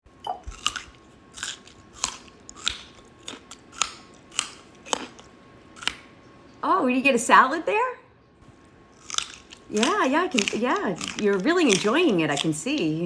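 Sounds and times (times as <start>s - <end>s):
crunchy chewing of vegetables: 0.3s - 6.1s, 8.5s - 13.0s.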